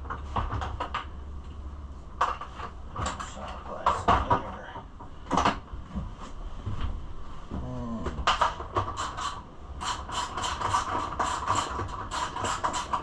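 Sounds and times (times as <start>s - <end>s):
sharp scraping clicks: 8.3s - 13.0s.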